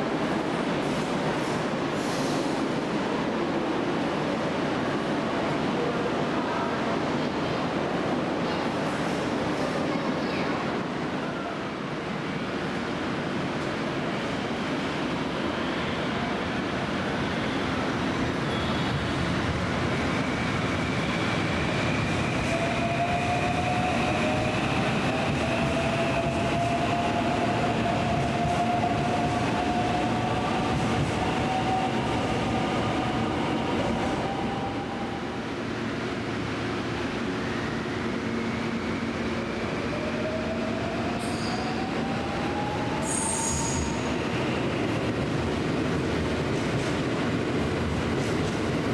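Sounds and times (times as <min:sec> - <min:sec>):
train wheels rumbling on rail: 0:16.1 - 0:48.9.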